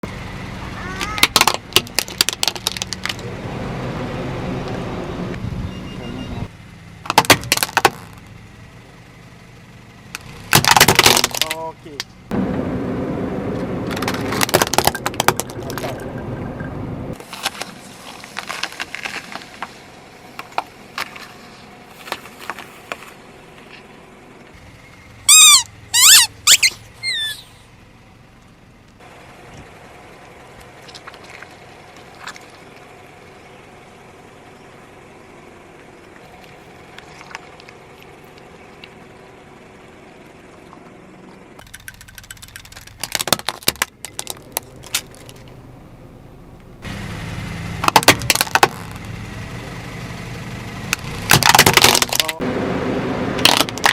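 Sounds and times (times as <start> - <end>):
objects crunching under car tyres: 1.0 - 3.3, 7.0 - 8.4, 10.2 - 12.2, 13.5 - 16.3, 17.1 - 24.0, 30.5 - 33.4, 35.8 - 39.3, 40.6 - 45.6, 47.8 - 49.2, 50.9 - 52.5, 53.4 - 53.9
loud wavering squeals: 25.3 - 27.6.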